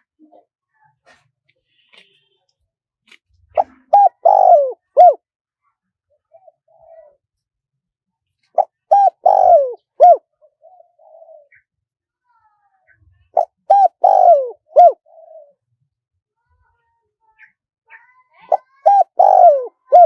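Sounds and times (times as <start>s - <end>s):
dove cooing: 3.6s - 5.2s, 6.3s - 7.2s, 8.6s - 11.6s, 13.3s - 15.6s, 18.4s - 20.0s.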